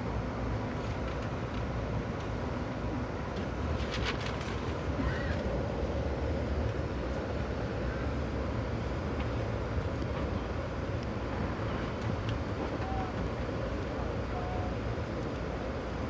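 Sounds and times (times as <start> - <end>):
train rolling rumble: 0.5 - 16.0.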